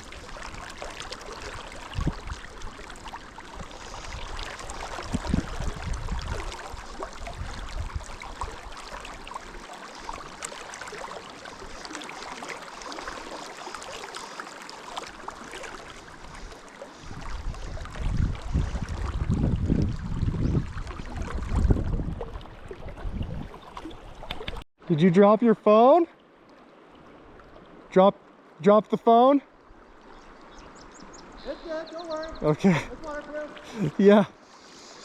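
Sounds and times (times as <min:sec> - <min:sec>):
river water flowing over stones: 0:00.0 - 0:35.0
wind gusts on microphone: 0:01.8 - 0:02.4, 0:03.6 - 0:08.6, 0:16.4 - 0:24.6.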